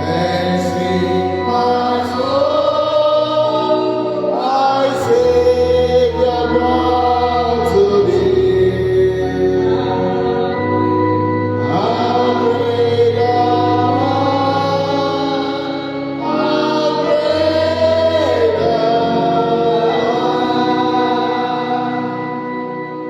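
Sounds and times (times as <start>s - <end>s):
gospel voices singing: 0.0s - 23.0s
held chords: 0.0s - 23.0s.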